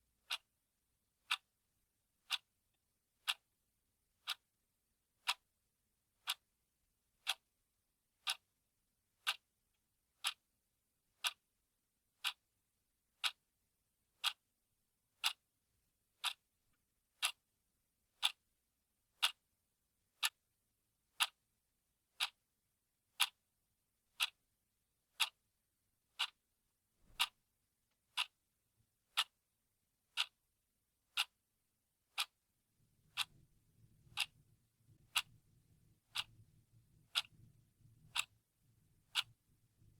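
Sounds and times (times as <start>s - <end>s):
mechanical clock ticking: 3.2s - 3.4s, 5.2s - 5.4s, 7.2s - 7.5s, 8.2s - 8.4s, 9.2s - 9.4s, 12.2s - 12.4s, 13.2s - 13.4s, 14.2s - 14.4s, 15.2s - 15.4s, 16.2s - 16.4s, 17.2s - 17.4s, 18.2s - 18.4s, 19.2s - 19.4s, 21.2s - 21.4s, 23.2s - 23.4s, 24.2s - 24.4s, 25.2s - 25.4s, 26.1s - 26.4s, 27.1s - 27.4s, 28.1s - 28.4s, 29.1s - 29.4s, 30.1s - 30.4s, 31.1s - 31.4s, 32.1s - 32.4s, 33.1s - 33.5s, 34.1s - 35.4s, 36.0s - 38.4s, 39.1s - 39.4s.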